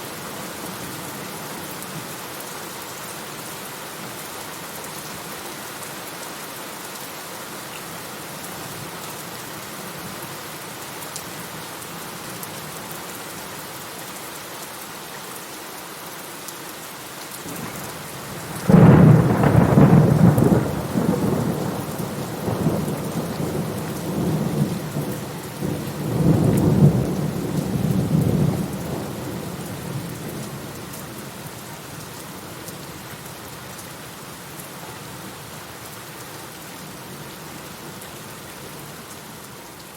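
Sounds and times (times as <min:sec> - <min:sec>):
steady rain: 0:00.0 - 0:39.9
thunder clap and rumble: 0:18.4 - 0:30.5.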